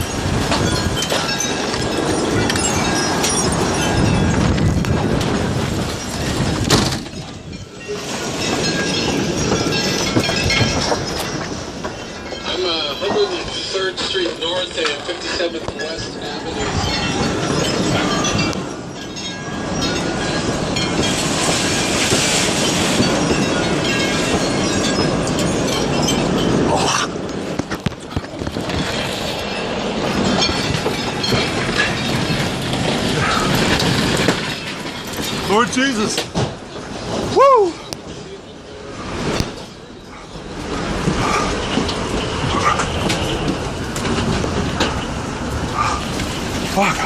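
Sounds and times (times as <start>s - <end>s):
tornado wind roaring: 0.0s - 47.0s.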